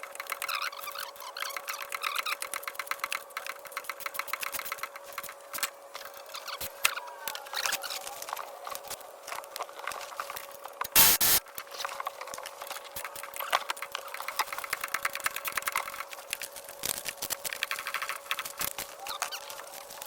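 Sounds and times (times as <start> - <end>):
loud burst of noise: 11.0 - 11.4.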